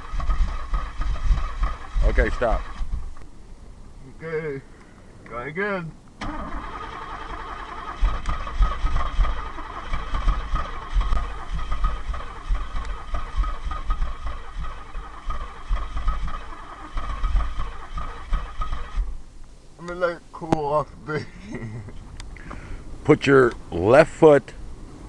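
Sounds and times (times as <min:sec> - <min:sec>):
engine starter cranking: 0:00.0 - 0:03.2, 0:06.2 - 0:19.2.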